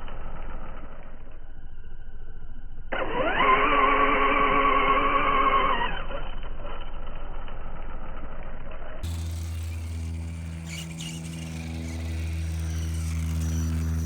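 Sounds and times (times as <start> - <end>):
electric motor whining: 9.0 - 14.0.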